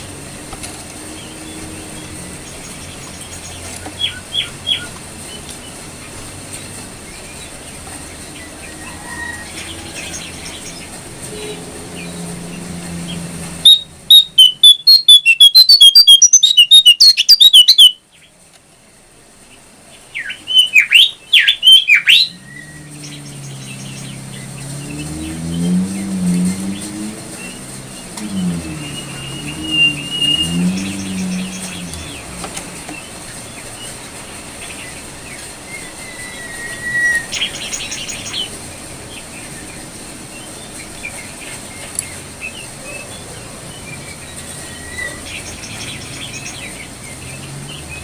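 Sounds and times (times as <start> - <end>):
low engine hum: 0.0 - 14.7, 22.1 - 48.0
songbird chirping and chattering: 1.1 - 18.3, 19.6 - 48.0
bird notes sweeping down: 21.4 - 33.2.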